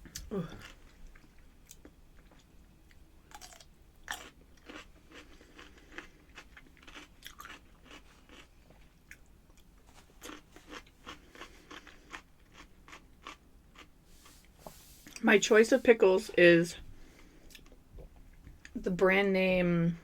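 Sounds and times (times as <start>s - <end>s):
person chewing pickles crunchily: 0.0s - 14.5s.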